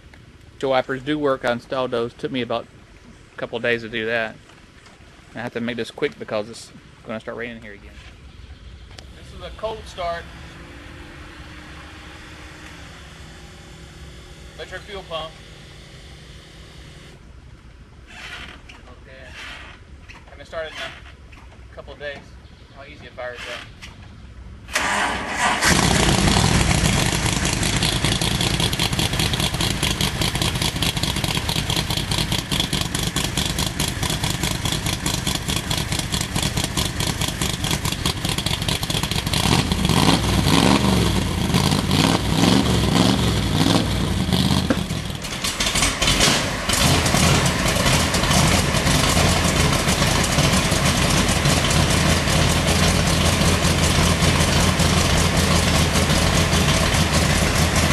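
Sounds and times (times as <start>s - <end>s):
car engine running: 8.4s - 17.3s, 25.6s - 57.9s
engine cranking and starting: 24.7s - 57.9s.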